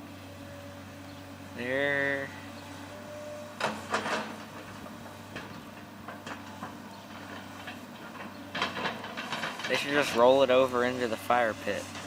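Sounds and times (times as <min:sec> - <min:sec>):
excavator diesel engine running: 0:00.0 - 0:12.0
metal knocks and clanks: 0:03.6 - 0:10.3.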